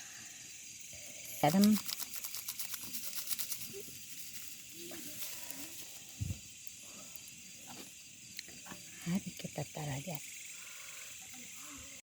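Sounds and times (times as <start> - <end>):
insects chirring: 0.0 - 12.0
food crackling and frying: 1.2 - 10.5.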